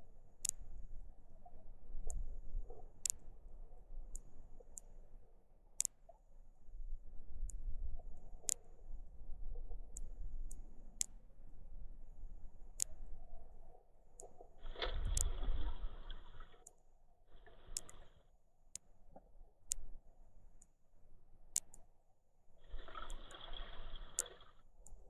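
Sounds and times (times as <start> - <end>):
sharp underwater clicks: 0.3 - 6.3, 7.4 - 11.4, 12.6 - 20.7, 21.5 - 22.0, 22.6 - 25.0
muffled underwater rumble: 6.4 - 16.6, 22.6 - 25.0.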